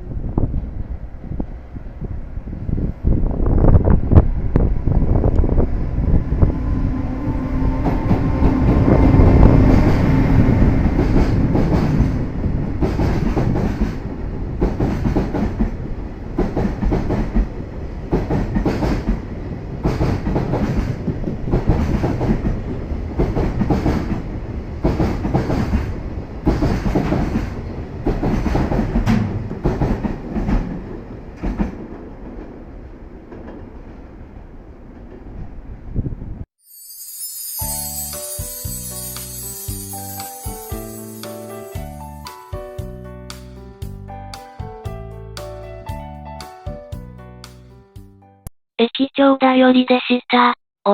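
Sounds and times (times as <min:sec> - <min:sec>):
locomotive hum: 0:00.1 - 0:20.5.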